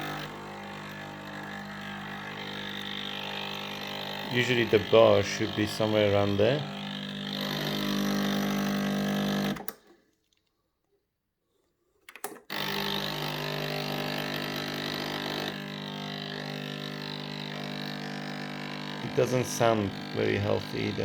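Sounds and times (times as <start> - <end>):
espresso machine pump humming: 0.0 - 9.7, 12.5 - 21.0
person talking: 4.2 - 6.8, 19.0 - 21.0.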